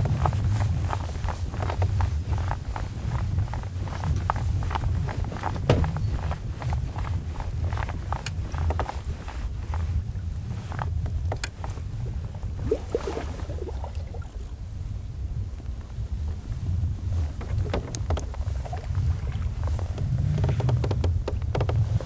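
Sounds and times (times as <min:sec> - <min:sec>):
clicks and knocks of gear: 0:00.0 - 0:11.9, 0:17.2 - 0:22.0
wind buffeting microphone: 0:00.0 - 0:22.0.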